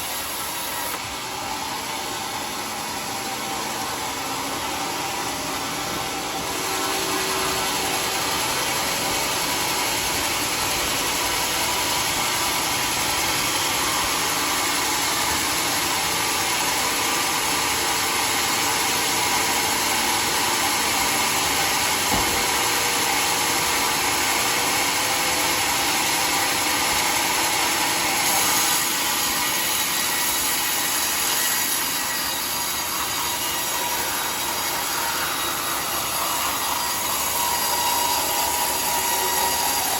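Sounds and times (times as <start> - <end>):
saw cutting through wood: 0.0 - 39.9
short knock: 22.1 - 22.6.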